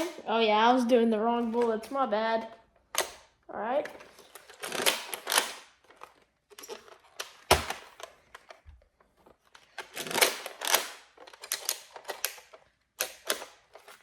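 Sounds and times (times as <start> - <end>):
toy blaster plastic clicks and rattles: 2.9 - 8.6, 9.5 - 14.0.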